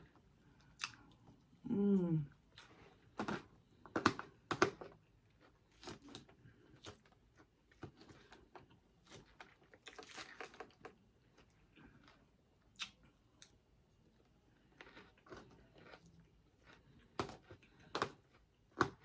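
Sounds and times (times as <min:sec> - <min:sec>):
person chewing crunchy food: 0:00.6 - 0:01.4, 0:02.5 - 0:13.6, 0:14.5 - 0:19.0.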